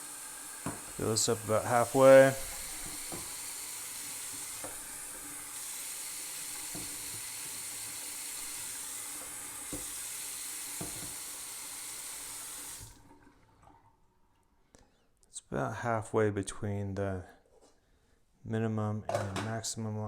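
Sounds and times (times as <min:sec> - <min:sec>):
tap water running into pot: 0:00.0 - 0:13.8.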